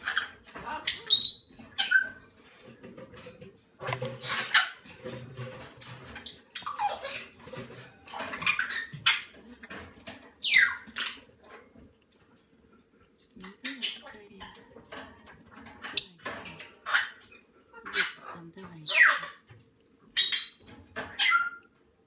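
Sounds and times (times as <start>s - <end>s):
cockatoo chicks begging calls: 15.9s - 19.5s.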